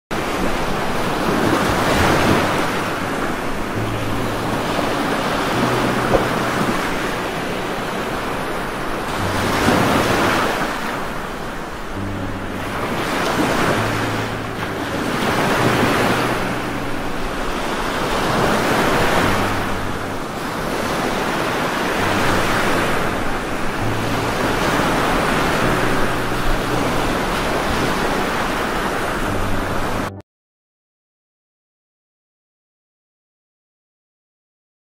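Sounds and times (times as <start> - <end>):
gusting wind: 0.1 - 30.1
heavy rain: 7.1 - 28.6.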